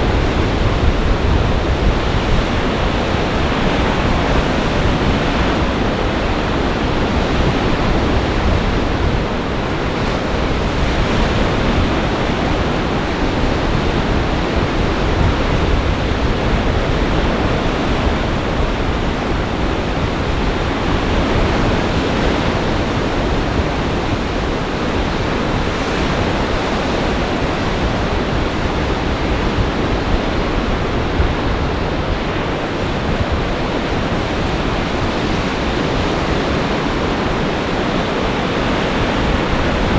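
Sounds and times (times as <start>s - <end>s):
wind: 0.0s - 39.9s.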